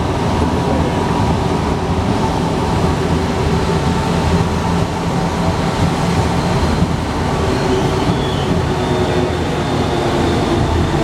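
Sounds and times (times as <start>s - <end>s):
metro train rumbling: 0.0s - 11.0s.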